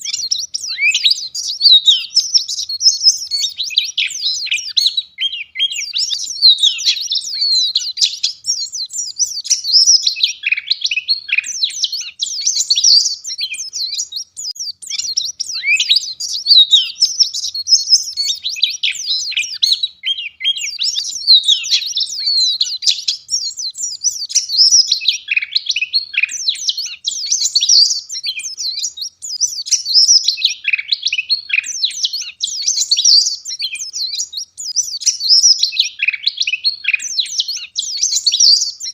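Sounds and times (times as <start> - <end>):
bird twittering song: 0.0 - 38.9.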